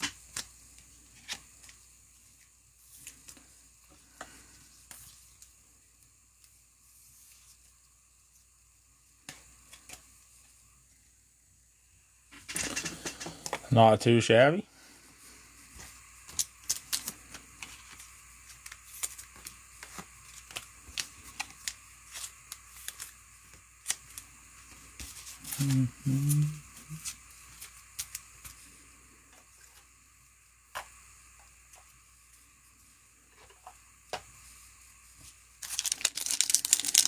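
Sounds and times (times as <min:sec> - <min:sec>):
cards being flipped by hand: 0:00.0 - 0:03.5, 0:09.2 - 0:10.1, 0:15.7 - 0:28.6, 0:35.2 - 0:37.0.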